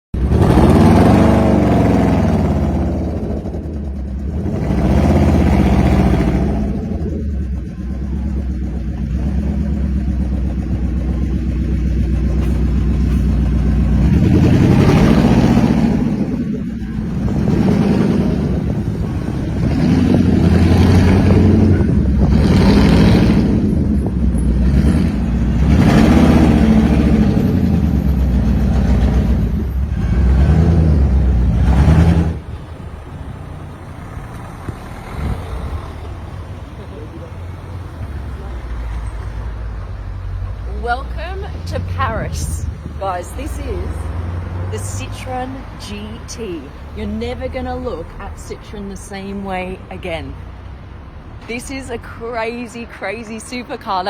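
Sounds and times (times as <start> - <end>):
car engine revving: 0.1 - 51.9.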